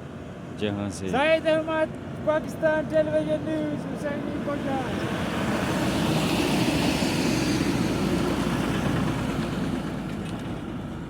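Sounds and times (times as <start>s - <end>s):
vehicle driving past: 4.4s - 11.0s.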